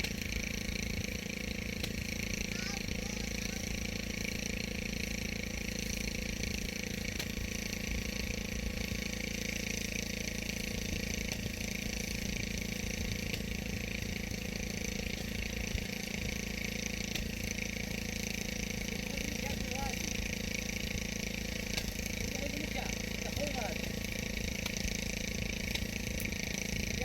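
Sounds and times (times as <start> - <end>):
engine humming steadily: 0.0 - 27.0.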